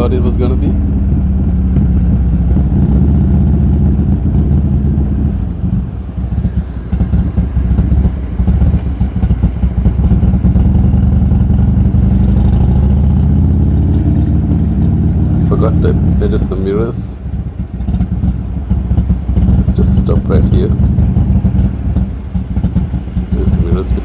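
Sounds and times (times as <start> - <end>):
motorcycle engine riding: 0.0 - 24.0.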